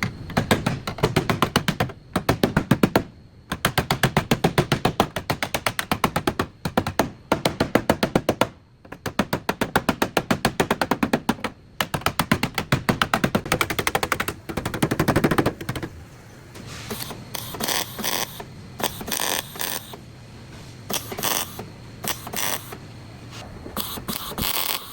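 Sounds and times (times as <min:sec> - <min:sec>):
power tool hammering rapidly: 0:17.3 - 0:20.0, 0:20.9 - 0:22.8.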